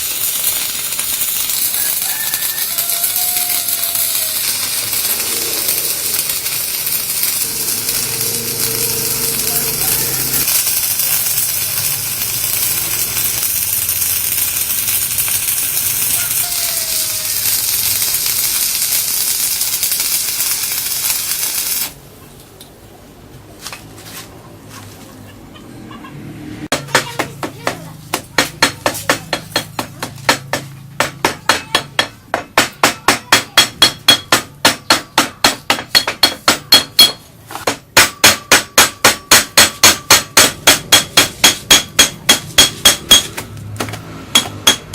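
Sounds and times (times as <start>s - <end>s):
machine hissing with low hum: 0.0s - 22.0s
hammer striking metal: 3.3s - 12.8s, 26.7s - 44.9s.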